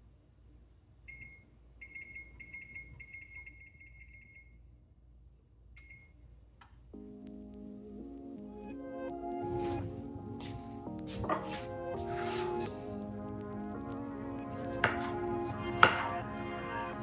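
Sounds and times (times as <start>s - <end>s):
appliance control panel beeps: 1.1s - 4.5s, 5.8s - 6.1s
music: 7.0s - 17.0s.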